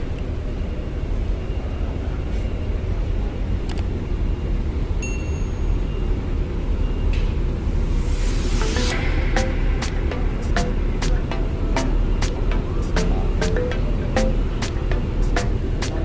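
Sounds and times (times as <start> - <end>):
brief high tone: 7.9 - 15.7
ship engines rumbling: 8.6 - 16.0.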